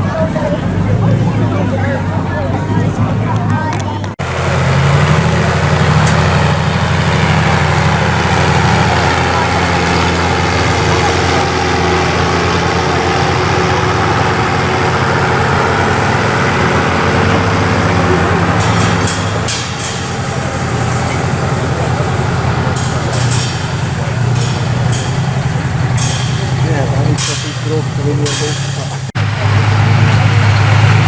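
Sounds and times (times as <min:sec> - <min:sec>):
heavy engine idling: 0:00.0 - 0:31.0.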